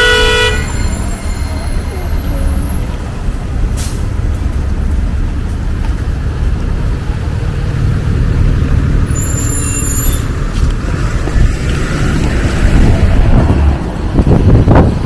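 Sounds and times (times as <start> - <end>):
high-pitched squeal: 0.0 - 3.0, 9.0 - 10.4
heavy traffic rumble: 0.0 - 15.0.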